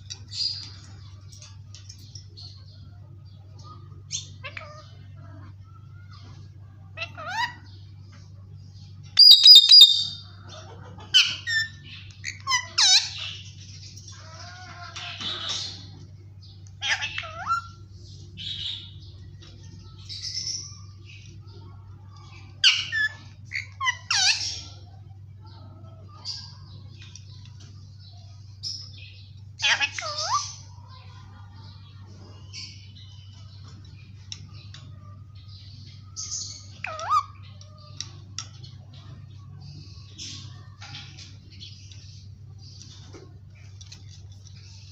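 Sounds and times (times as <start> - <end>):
low steady hum: 0.0 - 44.9
parakeet chirping and squawking: 4.1 - 5.2, 7.0 - 8.2, 9.1 - 16.0, 16.7 - 19.2, 22.3 - 24.9, 28.0 - 30.9, 35.9 - 43.0
parakeet squawking: 9.2 - 10.4, 16.8 - 17.8, 29.6 - 30.6, 36.4 - 37.5.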